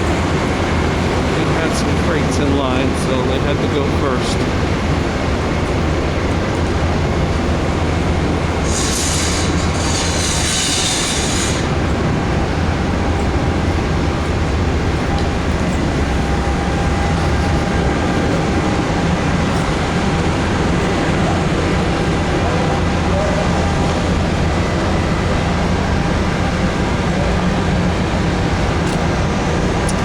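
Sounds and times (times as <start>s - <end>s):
diesel locomotive low rumble: 0.0s - 30.0s
loud air hiss: 8.6s - 11.8s.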